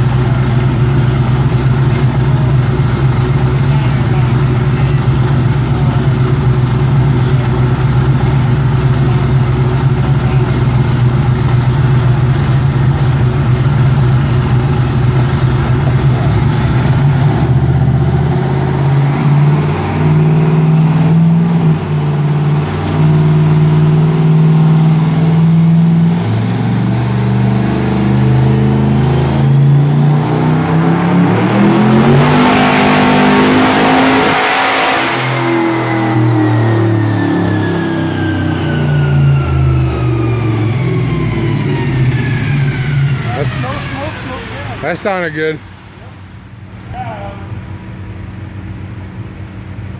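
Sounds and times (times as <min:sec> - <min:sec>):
race car engine revving: 0:00.0 - 0:47.0.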